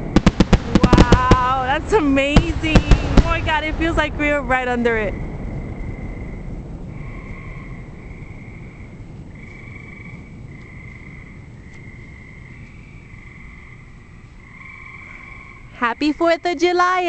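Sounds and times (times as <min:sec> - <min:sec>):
low rumble: 0:00.0 - 0:14.6
frogs trilling: 0:05.1 - 0:17.0.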